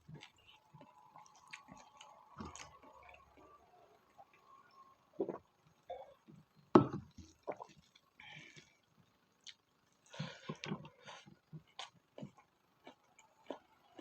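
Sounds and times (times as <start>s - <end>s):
wet chewing mouth sounds: 10.6s - 14.0s.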